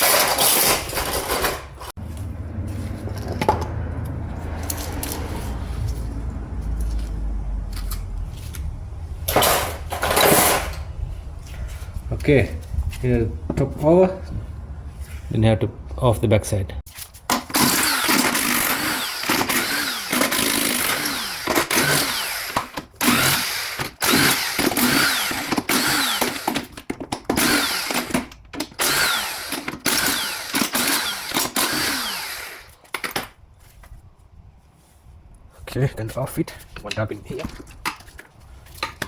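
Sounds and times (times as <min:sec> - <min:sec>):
power tool spinning out bolts: 0:17.3 - 0:33.2.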